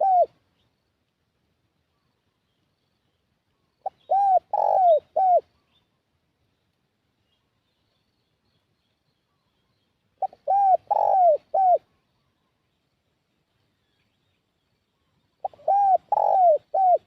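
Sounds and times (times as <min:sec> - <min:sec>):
dove cooing: 0:00.0 - 0:00.4, 0:03.8 - 0:05.5, 0:10.2 - 0:11.9, 0:15.4 - 0:17.0.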